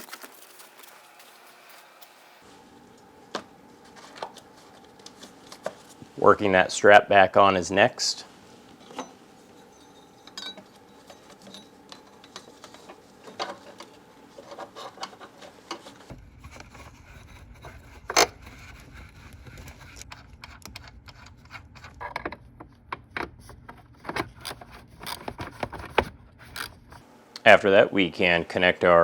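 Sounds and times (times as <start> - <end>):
small metal clicks and scrapes: 8.9 - 27.0.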